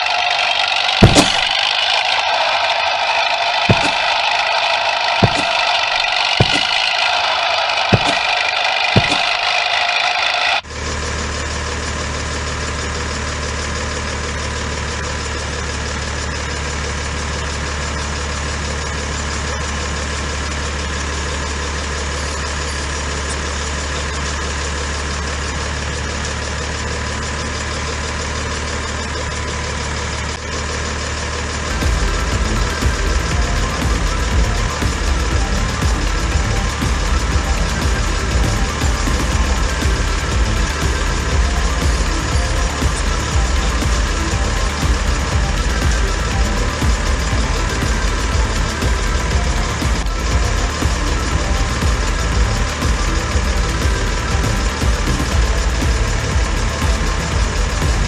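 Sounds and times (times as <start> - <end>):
heavy vehicle engine idling: 10.6 - 58.0
whirring hiss: 31.7 - 58.0.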